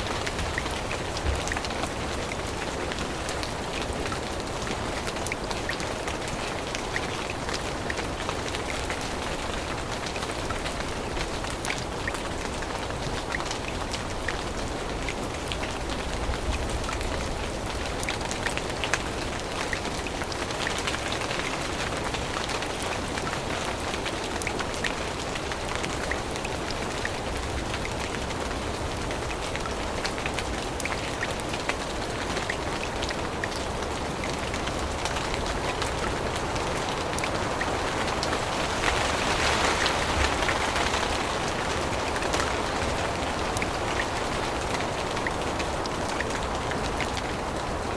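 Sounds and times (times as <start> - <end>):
rain on forest leaves: 0.0 - 47.9.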